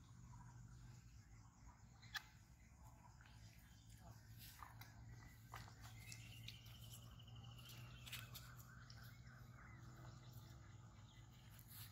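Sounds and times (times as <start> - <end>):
faint bird calls: 0.0 - 11.9.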